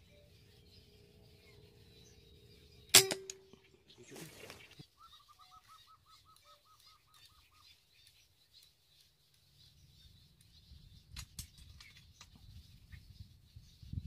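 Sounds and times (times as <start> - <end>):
faint high chirping: 0.0 - 4.1.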